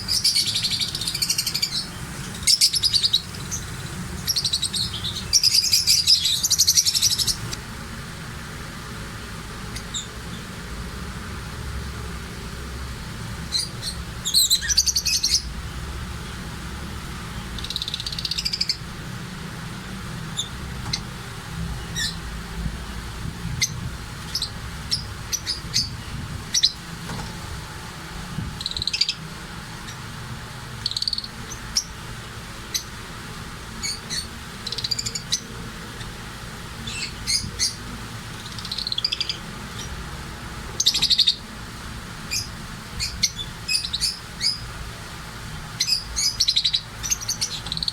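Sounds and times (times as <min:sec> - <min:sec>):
pet birds chirping: 0:00.0 - 0:07.6, 0:09.7 - 0:10.6, 0:13.4 - 0:16.5, 0:17.3 - 0:19.0, 0:19.9 - 0:22.3, 0:22.9 - 0:27.4, 0:28.4 - 0:30.1, 0:30.7 - 0:33.1, 0:33.8 - 0:36.2, 0:36.8 - 0:40.1, 0:40.7 - 0:41.5, 0:42.2 - 0:44.7, 0:45.6 - 0:47.9.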